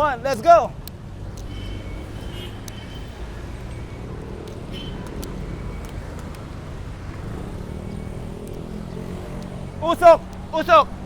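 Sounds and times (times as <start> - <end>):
road and traffic rumble: 0.0 - 11.0
faint sharp clicks: 4.4 - 6.4, 9.3 - 9.6.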